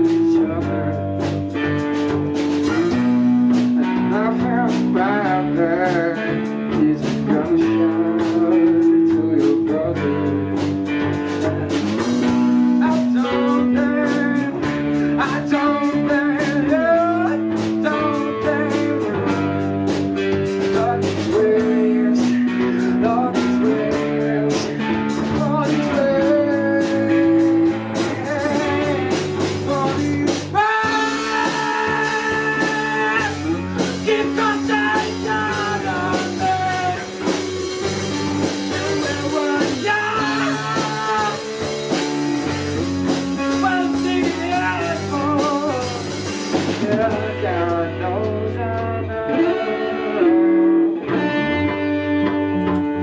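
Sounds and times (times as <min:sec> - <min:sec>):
live rock band: 0:00.0 - 0:53.0
person singing: 0:00.0 - 0:53.0.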